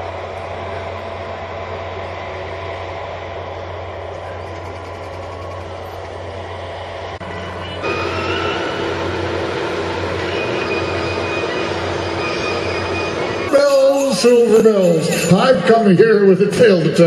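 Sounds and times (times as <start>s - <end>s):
steel wheels rumbling on rail: 0.0s - 17.0s
high wheel squealing: 2.0s - 16.1s.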